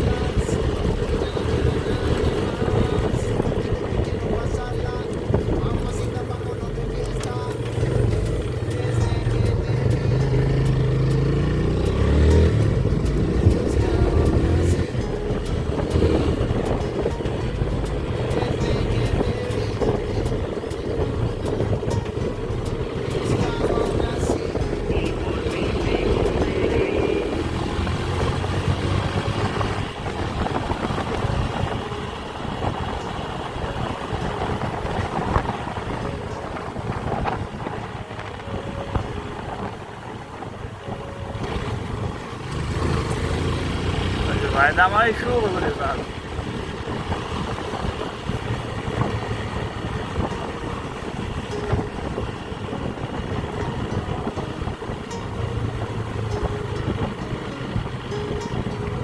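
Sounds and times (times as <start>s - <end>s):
motorcycle engine rumble: 0.0s - 59.0s
wind and road noise: 0.0s - 59.0s
small motorcycle engine running: 41.5s - 54.3s.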